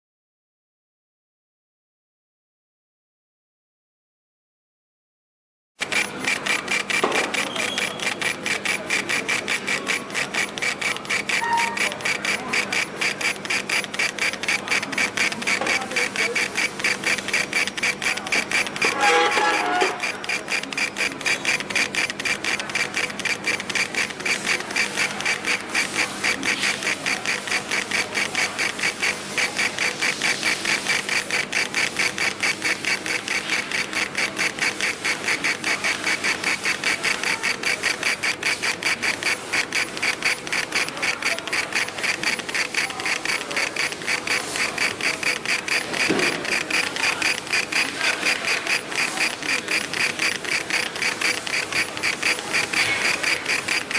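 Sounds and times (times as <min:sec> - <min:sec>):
laser engraver head moving back and forth: 0:05.8 - 0:53.9.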